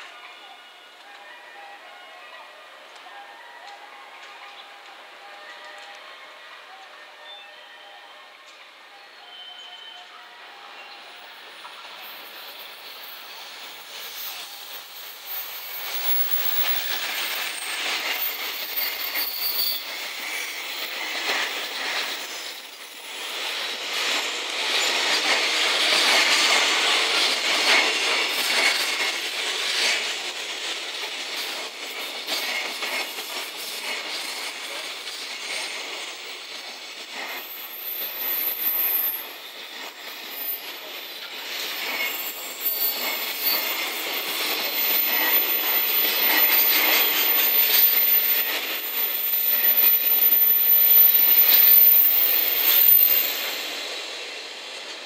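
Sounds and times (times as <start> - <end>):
electric locomotive passing: 0.0 - 55.0
wagon wheels clattering and squealing: 11.6 - 53.7.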